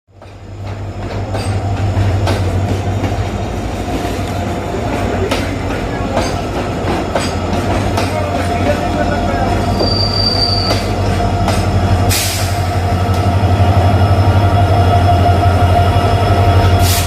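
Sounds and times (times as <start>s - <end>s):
wheels clacking over rail joints: 0.1s - 14.2s
diesel locomotive engine drone: 0.1s - 17.0s
train rolling rumble: 0.1s - 17.0s.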